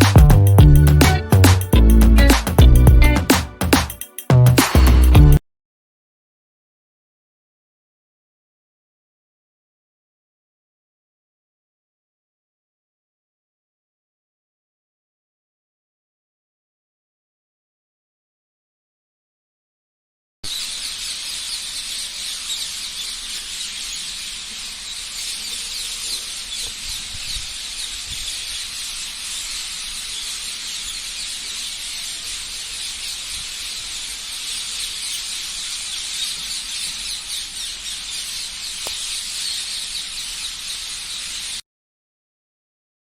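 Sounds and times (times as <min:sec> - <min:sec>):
small birds chirping: 0:00.0 - 0:05.4, 0:20.4 - 0:41.6.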